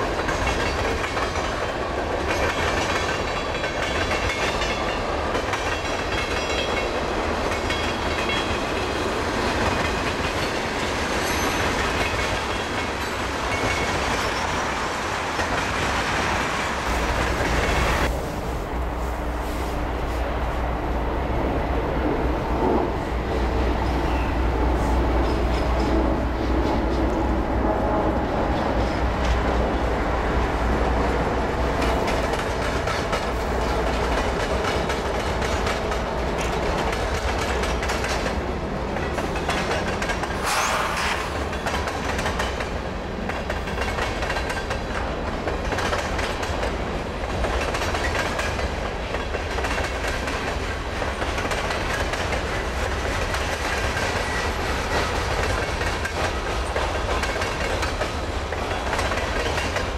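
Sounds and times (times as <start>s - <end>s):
train wheels clacking over rail joints: 0.0s - 18.1s, 31.0s - 59.9s
diesel locomotives passing: 0.0s - 59.9s.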